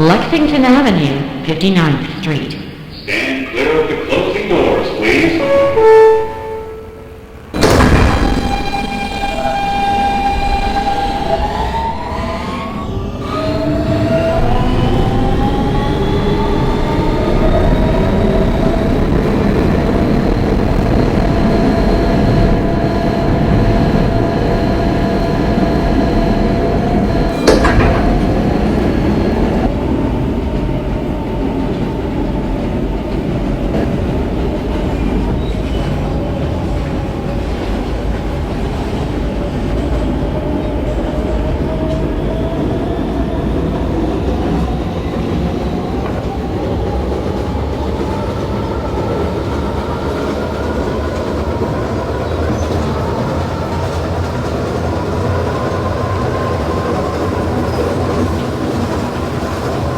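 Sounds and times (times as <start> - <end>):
wheel-on-rail rumble: 8.4 - 59.9
electric motor whine: 8.5 - 29.7.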